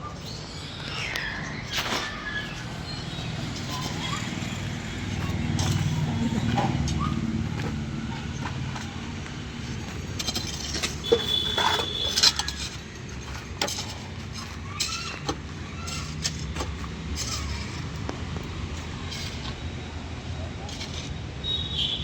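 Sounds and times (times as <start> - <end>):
high squeal: 0.0 - 7.2
excavator diesel engine running: 1.5 - 20.2
metal clanks and clinks: 9.6 - 18.0.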